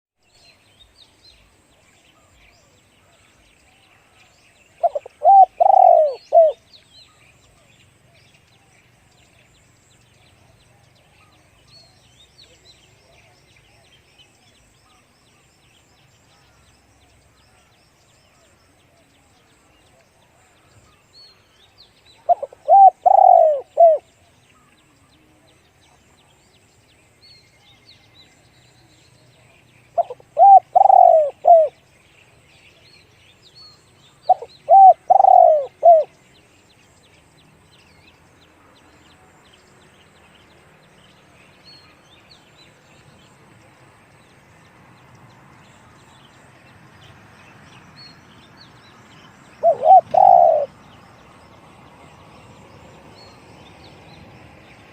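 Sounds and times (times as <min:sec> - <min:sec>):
small birds chirping faintly: 0:00.2 - 0:54.9
dove cooing: 0:04.8 - 0:06.6, 0:22.2 - 0:24.1, 0:30.0 - 0:31.8, 0:34.3 - 0:36.1, 0:49.6 - 0:50.8.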